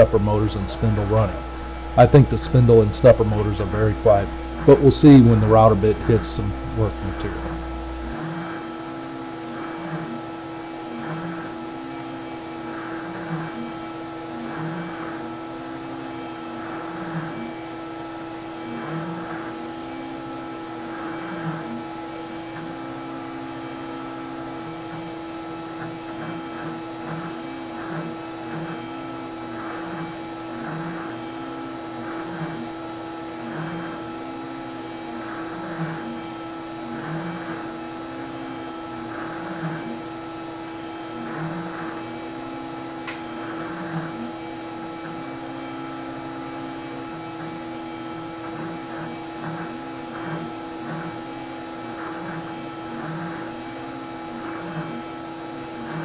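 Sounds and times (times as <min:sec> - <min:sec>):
router spindle high whine: 0:00.0 - 0:08.2
stepper motors whining: 0:00.0 - 0:08.2.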